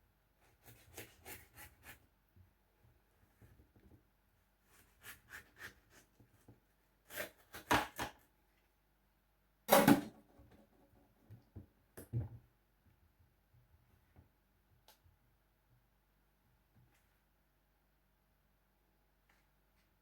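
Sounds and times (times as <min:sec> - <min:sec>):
knife cutting watermelon: 0:00.4 - 0:02.0, 0:04.7 - 0:06.4, 0:07.1 - 0:08.2.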